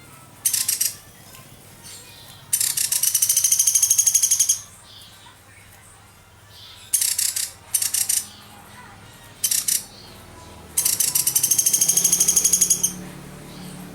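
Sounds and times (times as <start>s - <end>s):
woodpecker high trill: 0.0s - 5.2s, 6.5s - 8.6s, 9.3s - 13.9s.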